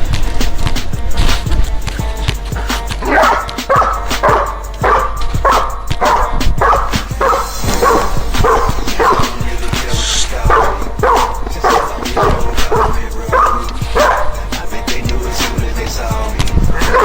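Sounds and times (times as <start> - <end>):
music with steady beat: 0.0 - 17.0
dog barking: 3.0 - 9.5, 10.4 - 14.4, 16.8 - 17.0.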